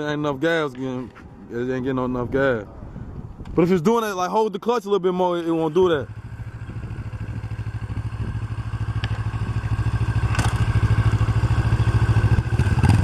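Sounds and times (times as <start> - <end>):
motorcycle engine at low revs: 5.4 - 13.0.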